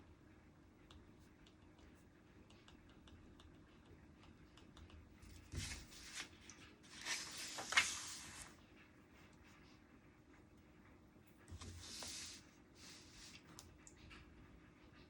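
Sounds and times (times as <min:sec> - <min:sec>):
paper rustling: 0:05.4 - 0:08.6, 0:11.5 - 0:13.4.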